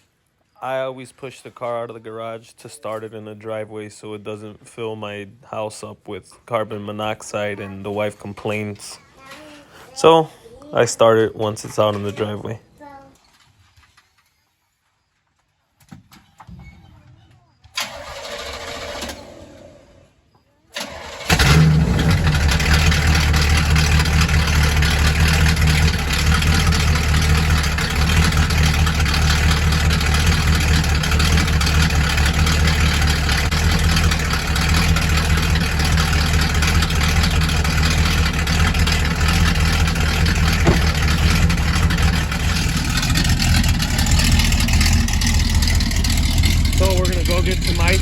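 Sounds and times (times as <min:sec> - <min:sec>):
car engine cranking: 0:17.8 - 0:19.7, 0:20.8 - 0:48.0
car engine idling: 0:20.8 - 0:48.0.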